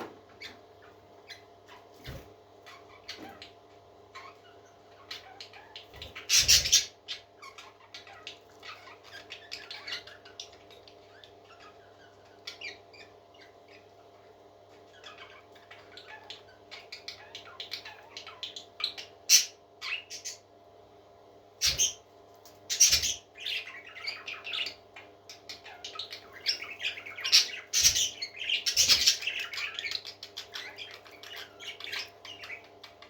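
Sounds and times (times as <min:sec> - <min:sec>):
baby parrot chirping and squeaking: 0:04.1 - 0:13.9, 0:14.8 - 0:20.4, 0:25.5 - 0:33.0.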